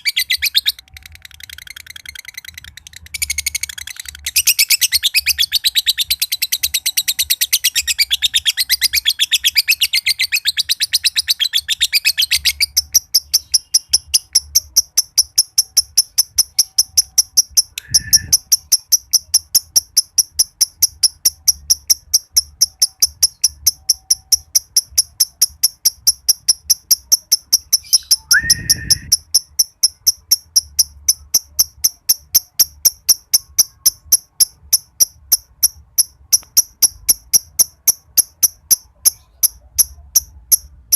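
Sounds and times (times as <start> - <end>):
lovebird chattering trill: 0.0 - 40.9
sharp ticks: 0.0 - 40.9.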